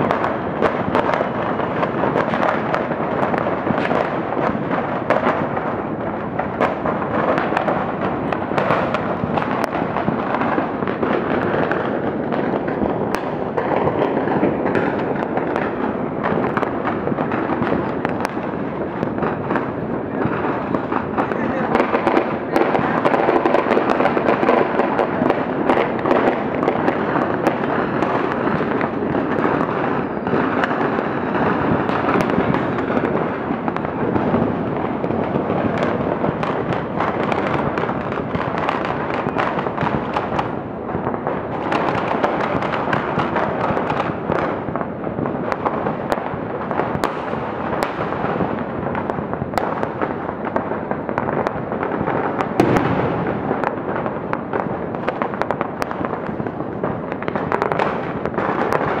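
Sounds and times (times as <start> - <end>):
firework shells bursting: 0.0 - 40.6, 51.2 - 56.3
loud firework bang: 0.0 - 56.4
sharp firework cracks: 0.0 - 59.0.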